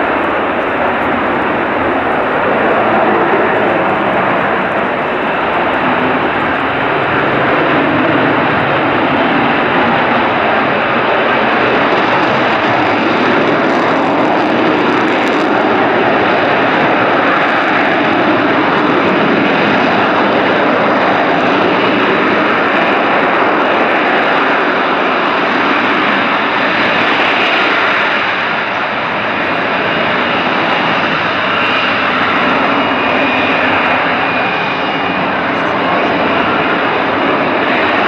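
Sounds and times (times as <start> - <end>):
fighter jet engine roaring: 0.0 - 38.0.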